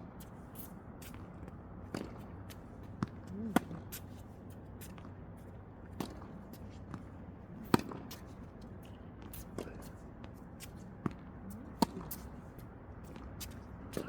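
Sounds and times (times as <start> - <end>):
tennis balls struck and bouncing: 1.9 - 3.9, 5.9 - 8.2, 11.0 - 12.3.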